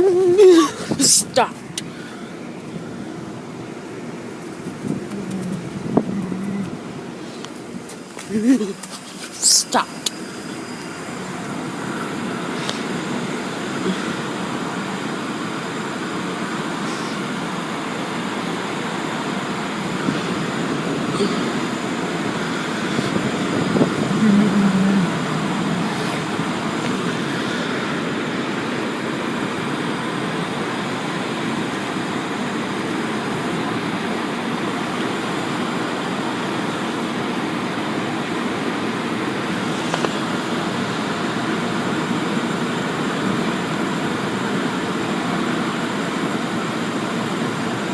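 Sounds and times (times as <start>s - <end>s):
car wash equipment rushing: 0.0s - 47.9s
car wash machine hum: 0.0s - 47.9s.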